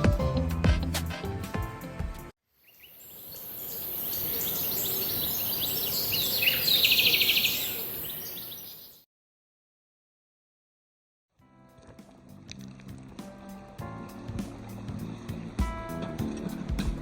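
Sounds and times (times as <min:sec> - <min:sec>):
music: 0:00.0 - 0:02.4, 0:11.4 - 0:17.0
high-pitched hiss: 0:02.6 - 0:08.9
bird chirps: 0:02.6 - 0:09.0
fast bird trill: 0:02.6 - 0:09.0.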